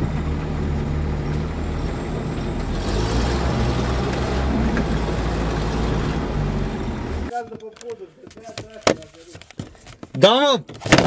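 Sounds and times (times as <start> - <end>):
vehicle engine running: 0.0 - 7.3
road and body rumble: 0.0 - 9.4.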